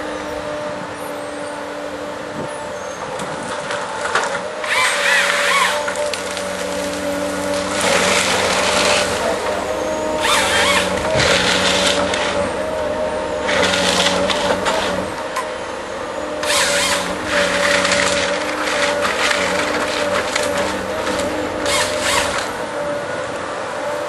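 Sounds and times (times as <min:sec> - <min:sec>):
engine and hydraulics running: 0:00.0 - 0:24.0
wood cracking and splintering: 0:03.2 - 0:12.6, 0:13.4 - 0:15.6, 0:16.4 - 0:22.6.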